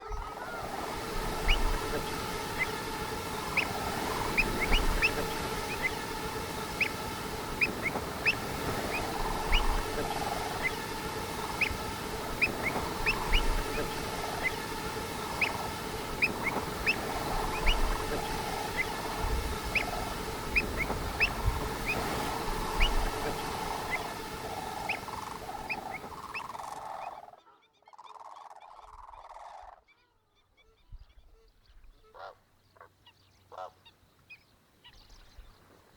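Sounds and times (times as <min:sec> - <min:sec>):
birds chirping: 0:00.0 - 0:27.6
steady background noise: 0:00.1 - 0:26.8.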